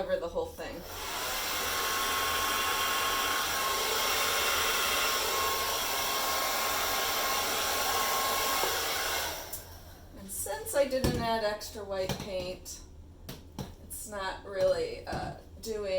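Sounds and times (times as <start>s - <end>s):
hairdryer running: 0.6s - 9.8s.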